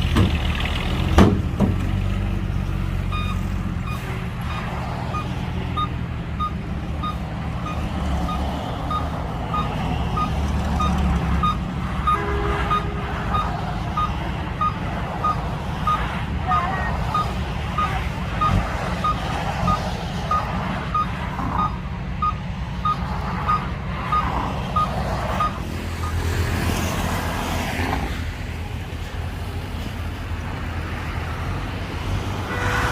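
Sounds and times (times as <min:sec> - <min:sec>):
diesel engine running: 0:00.0 - 0:32.9
backup alarm beeping: 0:03.1 - 0:04.0, 0:05.1 - 0:26.2.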